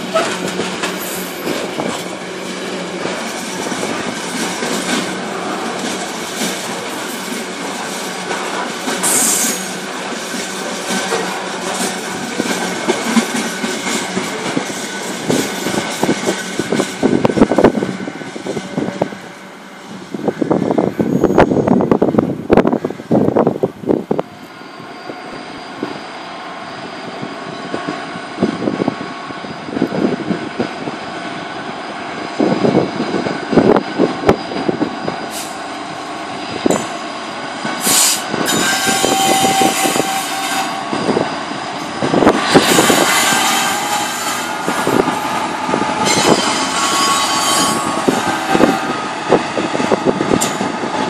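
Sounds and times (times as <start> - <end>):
train wheels knocking on track: 0.0 - 19.2, 36.6 - 51.0
high-pitched wheel squeal: 9.0 - 9.8, 21.0 - 21.8, 24.3 - 27.8, 37.8 - 50.9.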